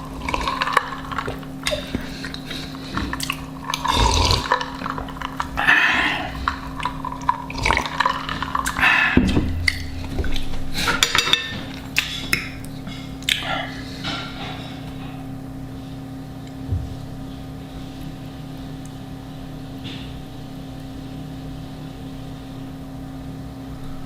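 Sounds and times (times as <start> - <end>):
chewing and wet mouth sounds: 0.0 - 13.9
sharp mouth clicks: 12.0 - 13.7.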